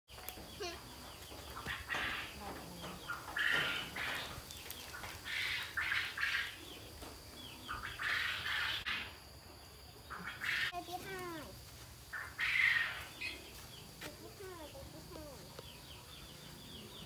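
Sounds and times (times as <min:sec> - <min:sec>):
short noisy bird calls: 0:05.0 - 0:06.8, 0:10.1 - 0:10.8, 0:12.1 - 0:13.6.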